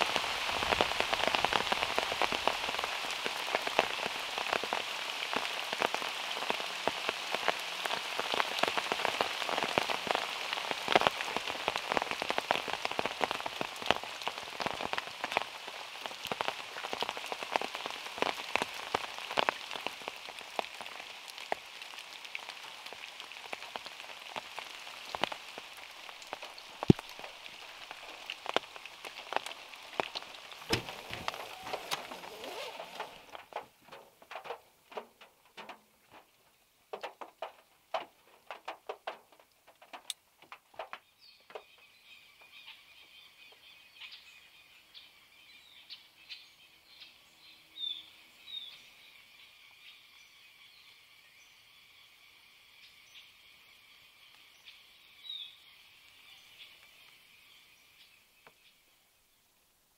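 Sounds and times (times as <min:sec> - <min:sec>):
raindrops ticking on car roof: 0:00.0 - 0:43.7
rain hissing on car: 0:00.0 - 0:46.3, 0:46.9 - 0:59.9.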